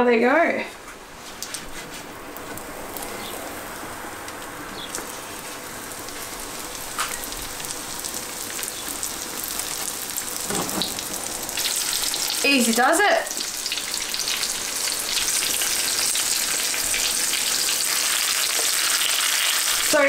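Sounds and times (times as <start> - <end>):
meat sizzling in hot oil: 1.4 - 20.0.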